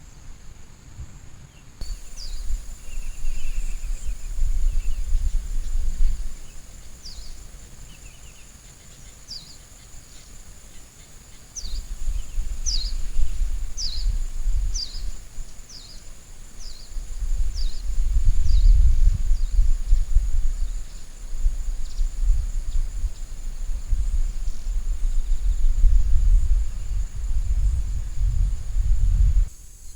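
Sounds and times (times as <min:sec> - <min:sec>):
bird chirping: 0:01.8 - 0:17.0
high insect buzz: 0:01.8 - 0:29.9.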